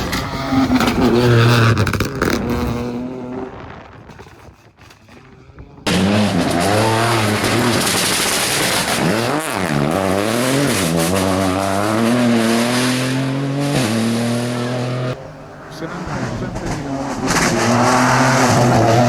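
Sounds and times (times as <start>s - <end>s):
rally car engine revving: 0.0s - 19.0s
tyre noise: 0.0s - 19.0s.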